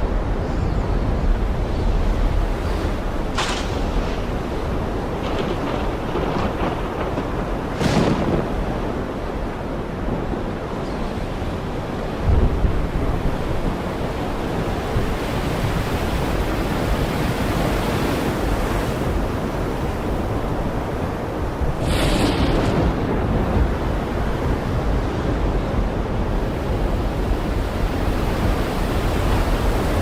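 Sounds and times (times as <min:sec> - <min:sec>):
heavy rain hissing: 0:21.7 - 0:23.4.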